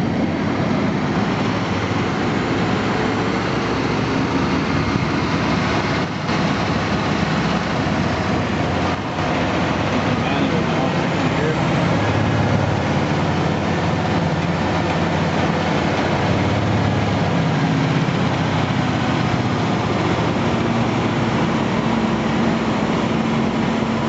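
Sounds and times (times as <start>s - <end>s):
truck diesel engine droning: 0.0s - 24.0s.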